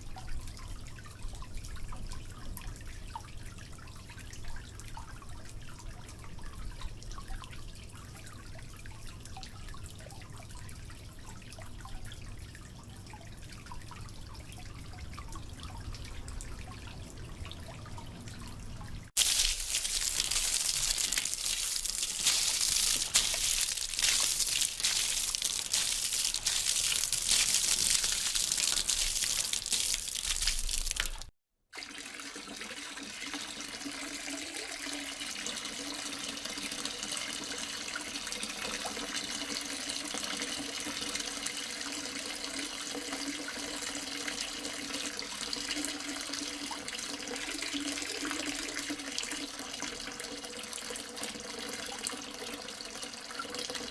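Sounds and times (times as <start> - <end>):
quiet stream of running water: 0.0 - 37.0.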